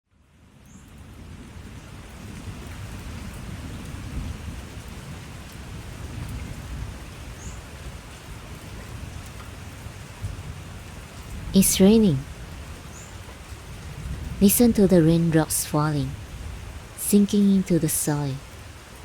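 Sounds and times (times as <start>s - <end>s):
steady rain falling: 0.2s - 19.0s.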